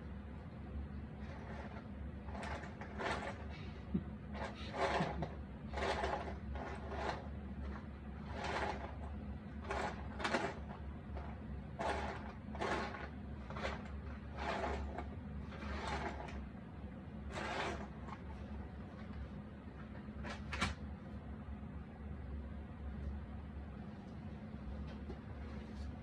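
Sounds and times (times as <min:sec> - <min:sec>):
steady low hum: 0:00.0 - 0:26.0
puzzle pieces scraping on table: 0:01.2 - 0:03.6, 0:04.3 - 0:09.0, 0:09.6 - 0:16.4, 0:17.3 - 0:18.3.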